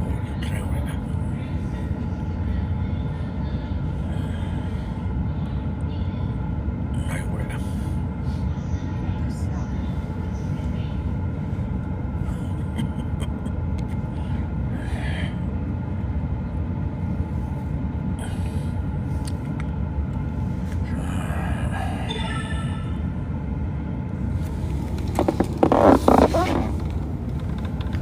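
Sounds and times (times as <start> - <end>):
train wheels rumbling on rails: 24.2 - 28.0.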